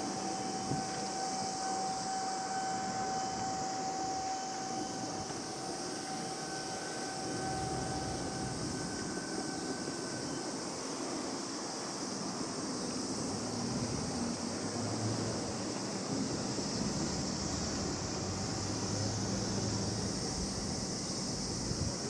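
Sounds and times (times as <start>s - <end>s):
tram electrical whine: 0.0s - 22.0s
tram rolling noise: 0.0s - 22.0s.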